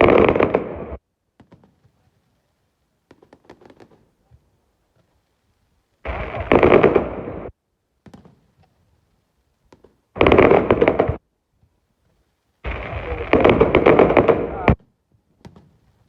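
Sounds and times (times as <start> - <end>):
fireworks bangs and crackles: 0.0 - 2.4, 3.0 - 5.2, 6.1 - 8.8, 9.7 - 11.3, 12.6 - 16.0.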